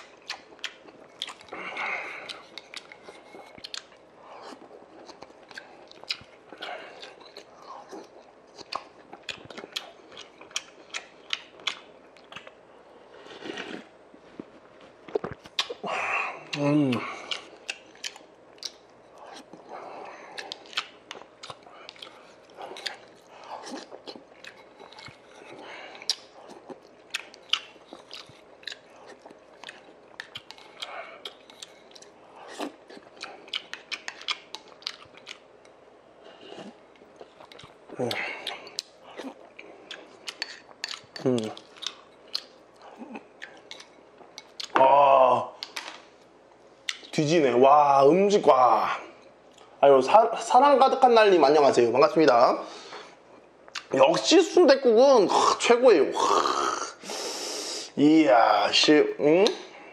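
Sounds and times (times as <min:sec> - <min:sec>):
chewing food: 0:00.0 - 0:44.9, 0:46.8 - 0:47.2.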